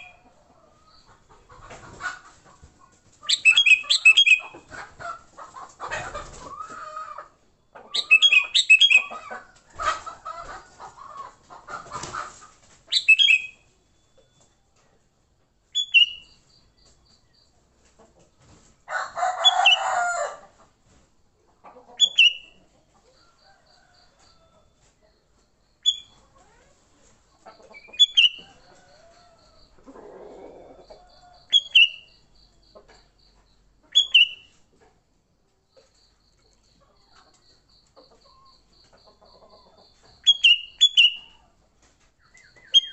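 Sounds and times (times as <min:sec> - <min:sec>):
longer harsh bird sound: 0:03.3 - 0:04.6, 0:07.9 - 0:09.2, 0:12.9 - 0:13.7, 0:15.8 - 0:17.5, 0:27.8 - 0:28.6, 0:31.2 - 0:32.6, 0:33.9 - 0:34.6, 0:40.0 - 0:41.4, 0:42.2 - 0:42.9.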